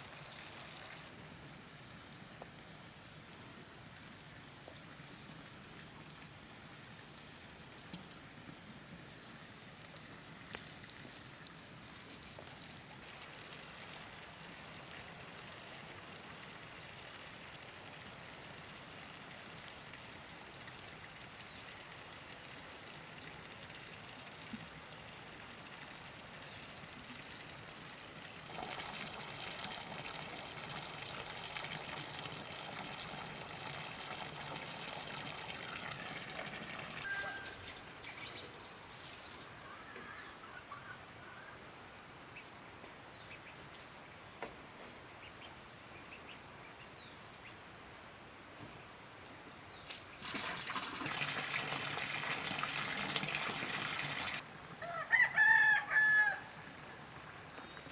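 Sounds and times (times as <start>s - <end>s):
water trickling and splashing: 0.0s - 39.5s, 49.7s - 54.8s
bird chirps: 37.0s - 41.4s.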